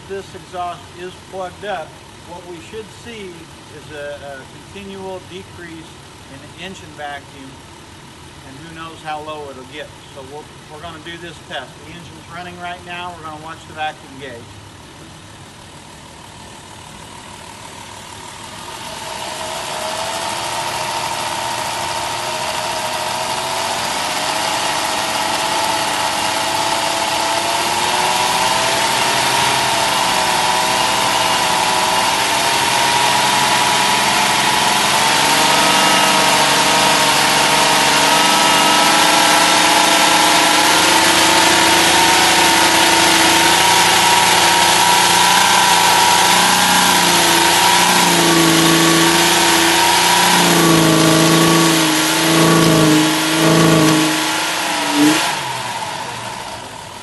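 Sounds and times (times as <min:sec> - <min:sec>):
car engine revving high: 0:16.4 - 0:57.0.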